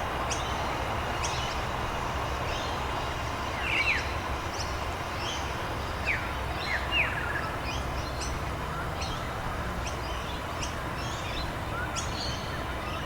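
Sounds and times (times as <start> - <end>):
steady rain hiss: 0.0 - 8.7.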